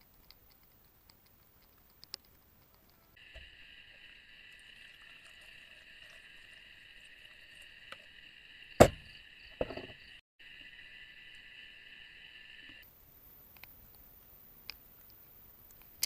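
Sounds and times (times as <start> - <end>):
insects chirping: 0.0 - 16.0
sharp knocks: 8.8 - 10.0.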